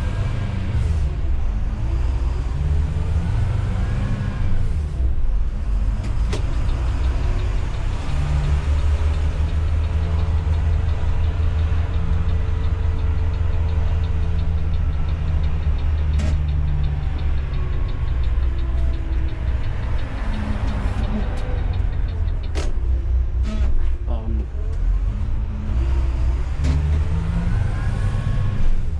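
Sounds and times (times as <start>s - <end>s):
diesel engine running: 0.0s - 28.9s
sharp clicks: 5.9s - 23.4s
fast even ticking: 6.4s - 23.0s.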